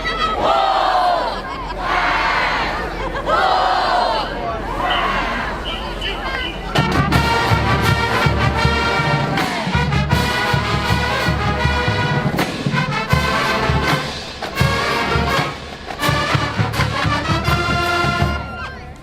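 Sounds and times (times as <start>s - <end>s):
brass horns in chords: 4.8s - 18.7s
deep drum beats: 6.7s - 18.6s.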